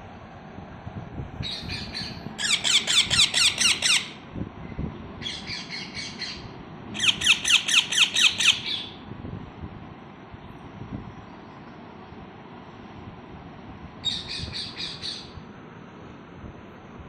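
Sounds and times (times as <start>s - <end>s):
baby parrots chirping: 1.5s - 4.2s, 7.0s - 9.0s.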